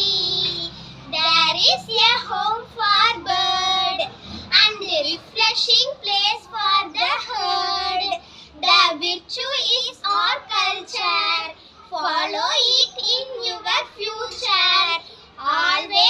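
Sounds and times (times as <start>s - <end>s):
child singing unaccompanied: 0.0s - 16.0s.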